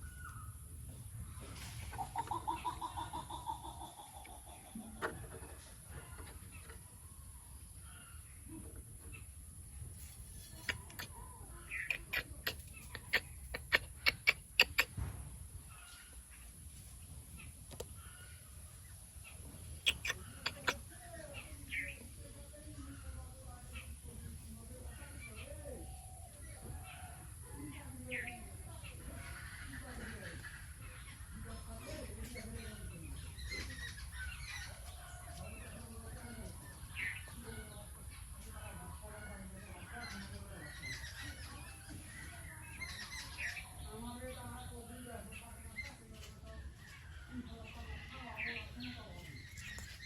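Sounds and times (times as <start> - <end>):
birds chirping: 0.0 - 50.0
birds clucking: 0.0 - 50.0.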